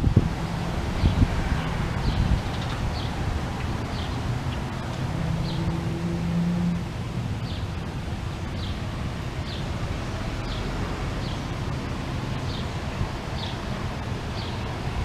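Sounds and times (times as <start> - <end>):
low rumble of wind: 0.0 - 15.0.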